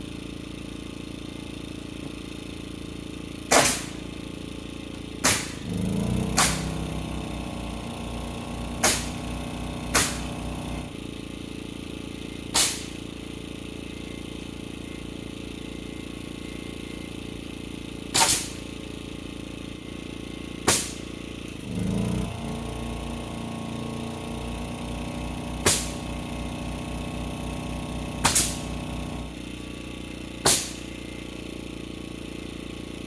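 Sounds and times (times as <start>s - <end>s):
steady low hum: 3.2s - 33.0s
pneumatic nailer firing: 3.4s - 11.0s, 12.4s - 13.2s, 18.0s - 18.9s, 20.6s - 23.1s, 24.0s - 29.6s, 30.3s - 31.3s.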